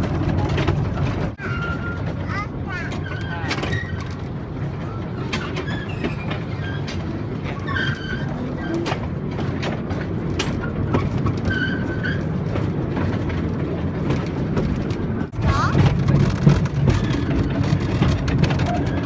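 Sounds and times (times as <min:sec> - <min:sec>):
train rolling on track: 0:00.0 - 0:19.0
high squeaks: 0:04.8 - 0:09.0.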